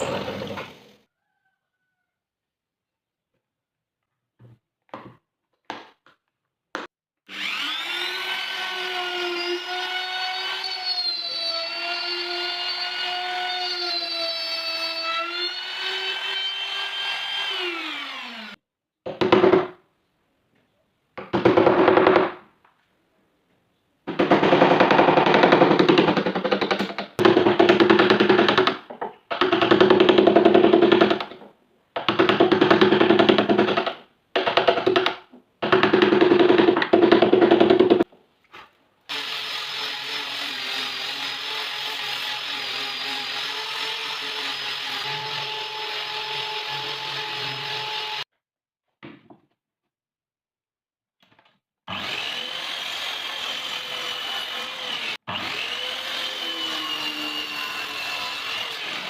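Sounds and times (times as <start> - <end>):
power tool motor humming: 7.3 - 8.8.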